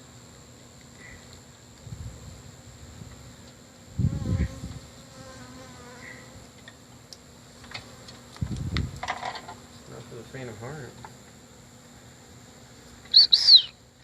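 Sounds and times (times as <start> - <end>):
bees buzzing: 3.7 - 6.6.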